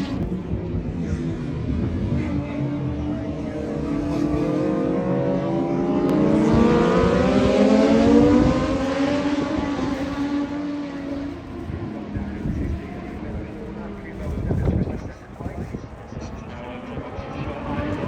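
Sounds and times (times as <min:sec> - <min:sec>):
motorcycle engine accelerating past: 0:02.4 - 0:11.2.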